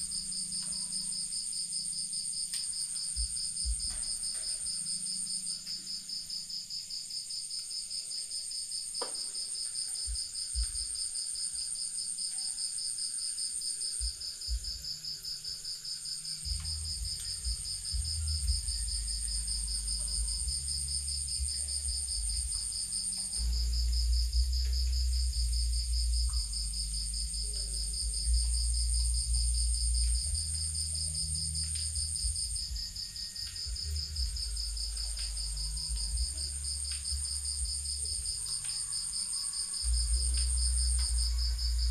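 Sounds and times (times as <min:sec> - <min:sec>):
crickets trilling: 0:00.0 - 0:41.9
low rumble: 0:16.5 - 0:38.5, 0:39.9 - 0:41.9.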